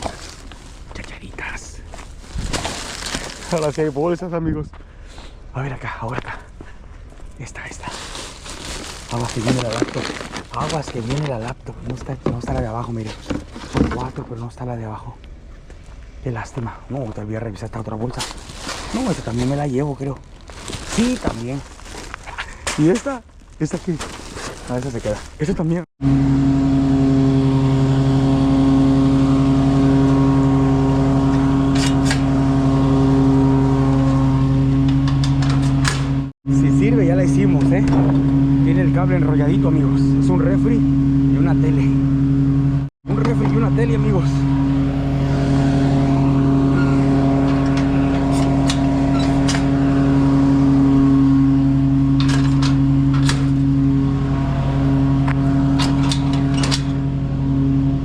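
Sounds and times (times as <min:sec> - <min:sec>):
motor humming: 0:26.0 - 0:58.0.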